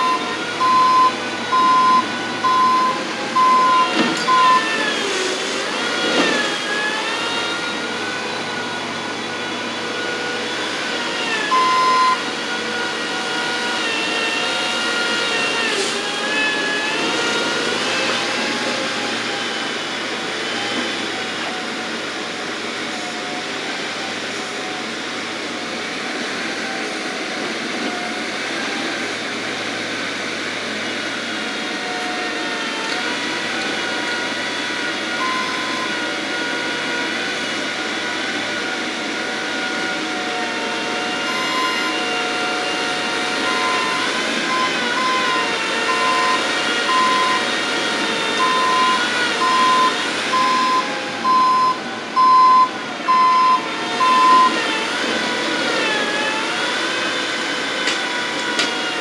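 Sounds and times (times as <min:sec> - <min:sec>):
reversing alarm beep: 0:00.0 - 0:04.9, 0:11.4 - 0:12.3, 0:35.2 - 0:36.0, 0:43.4 - 0:47.5, 0:48.4 - 0:54.6
diesel engine working: 0:00.0 - 0:25.6, 0:27.0 - 0:59.0.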